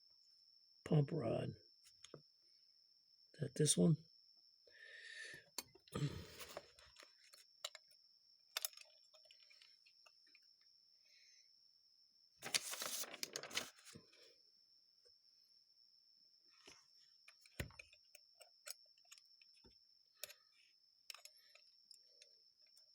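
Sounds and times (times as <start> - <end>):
small metal parts clinking: 8.6 - 10.1.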